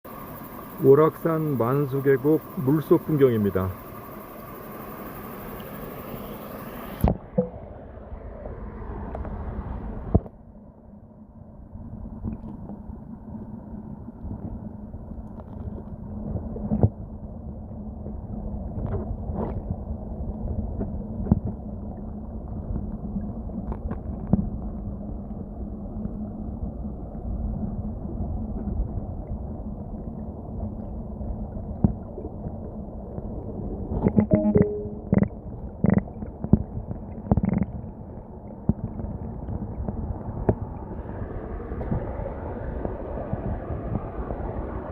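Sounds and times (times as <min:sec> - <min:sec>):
muffled underwater flowing water: 0:00.1 - 0:44.9
underwater clicks and knocks: 0:07.0 - 0:07.6, 0:20.8 - 0:21.6, 0:34.0 - 0:40.6.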